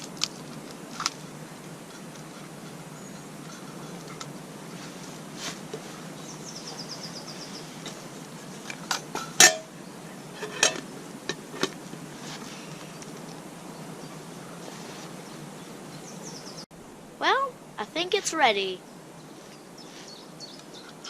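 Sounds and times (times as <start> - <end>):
utensil clinking on frying pan: 9.2 - 9.7.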